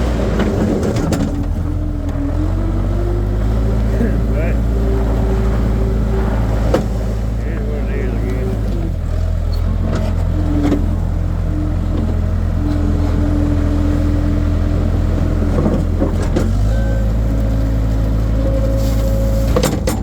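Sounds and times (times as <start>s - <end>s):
skid steer engine running: 0.0s - 20.0s
whining tones shifting in pitch: 1.4s - 18.7s.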